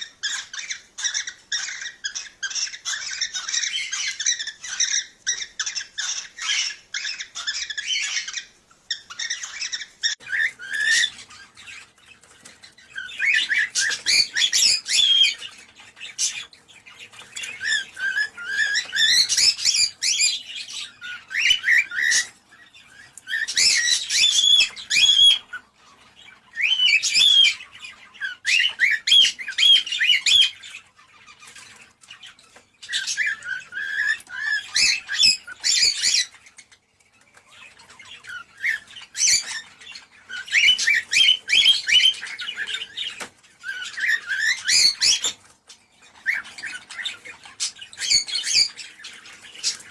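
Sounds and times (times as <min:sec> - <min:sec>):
cockatiels chattering and warbling: 0:00.0 - 0:49.9.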